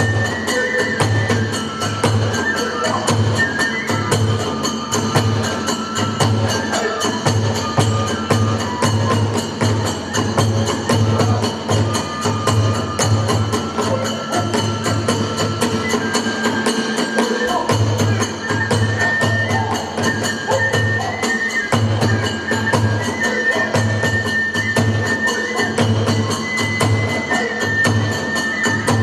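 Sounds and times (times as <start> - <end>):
bamboo flute high notes: 0.0 - 29.0
hand cymbals clashing: 0.0 - 29.0.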